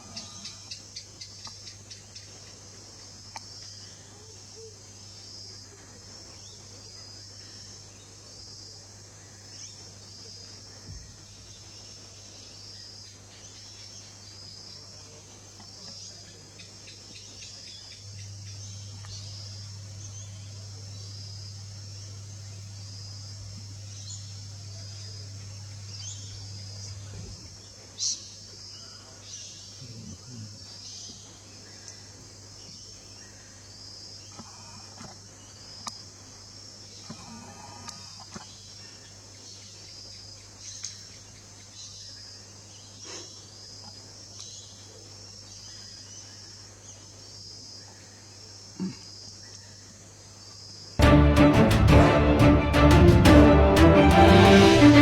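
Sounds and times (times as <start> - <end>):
insects chirping: 0.0 - 51.0
low steady hum: 17.9 - 27.8.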